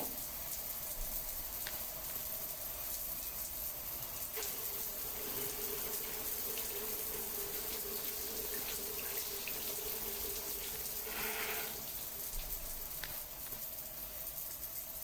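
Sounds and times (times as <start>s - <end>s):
water drips: 0.0s - 15.0s
water running: 0.0s - 15.0s.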